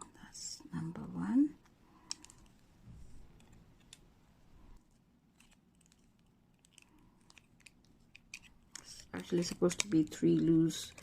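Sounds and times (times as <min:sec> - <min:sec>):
tiny parts handled: 0:02.0 - 0:02.6, 0:03.2 - 0:04.1, 0:05.3 - 0:11.0.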